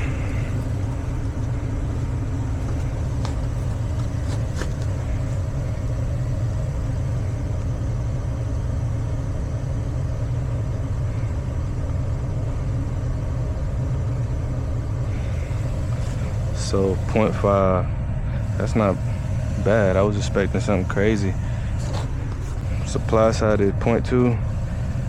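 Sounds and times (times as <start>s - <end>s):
gas furnace rumbling: 0.0s - 25.0s.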